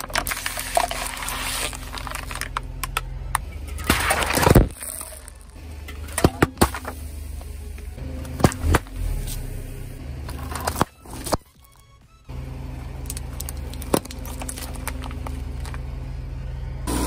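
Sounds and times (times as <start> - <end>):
plastic toys cracking under tyre: 0.0 - 6.9, 10.3 - 11.9, 12.8 - 15.8
car engine running slowly: 0.0 - 17.0.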